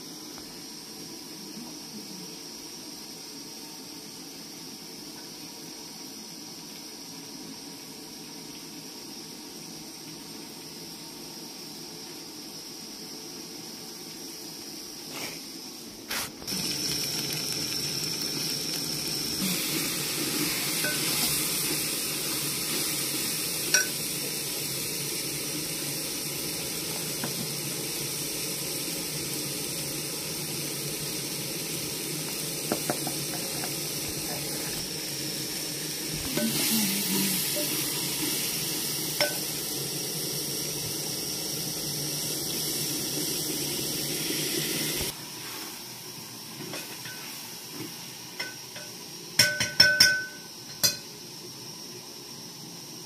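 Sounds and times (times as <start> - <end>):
vegetables sizzling in a pot: 0.0 - 53.0
metal spoon clinking on pot: 23.7 - 24.0, 48.4 - 51.1.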